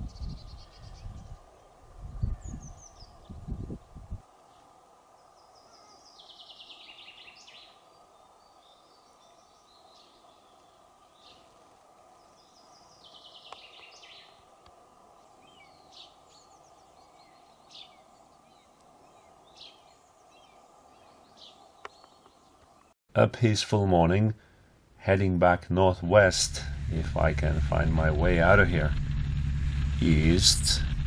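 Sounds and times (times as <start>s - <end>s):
bird chirps: 0.0s - 1.4s, 2.2s - 3.4s, 5.2s - 11.6s, 12.2s - 14.4s, 15.2s - 22.9s
songbird singing: 0.0s - 23.0s.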